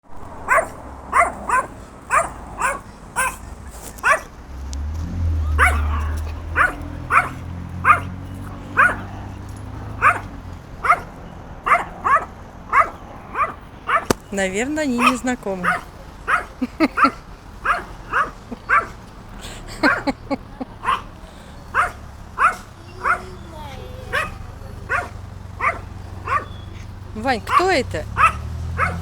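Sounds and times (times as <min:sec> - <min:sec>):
dog barking: 0:00.4 - 0:04.3, 0:05.6 - 0:08.2, 0:08.8 - 0:09.1, 0:10.0 - 0:14.3, 0:15.0 - 0:19.0, 0:20.8 - 0:21.1, 0:21.7 - 0:23.4, 0:24.1 - 0:26.6, 0:27.5 - 0:29.0.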